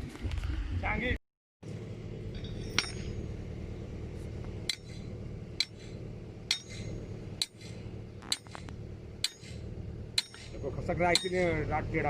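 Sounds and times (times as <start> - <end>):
low rumble: 0.0 - 12.0
hammer striking metal: 2.3 - 3.4, 4.6 - 8.6, 9.2 - 11.6.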